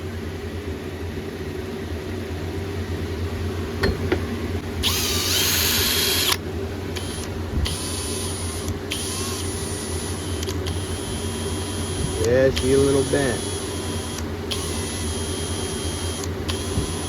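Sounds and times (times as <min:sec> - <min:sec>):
power drill whirring: 0:04.8 - 0:17.0
sharp clicks: 0:10.1 - 0:10.9, 0:12.1 - 0:13.0, 0:14.1 - 0:15.0.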